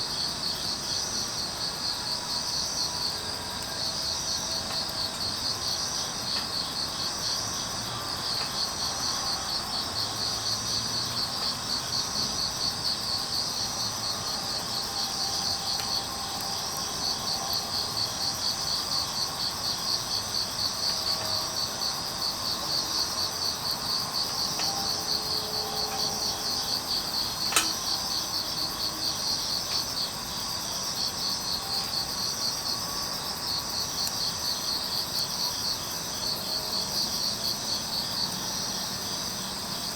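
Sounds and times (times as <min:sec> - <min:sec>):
crickets chirping: 0:00.0 - 0:39.9
firewood popping: 0:25.8 - 0:30.5.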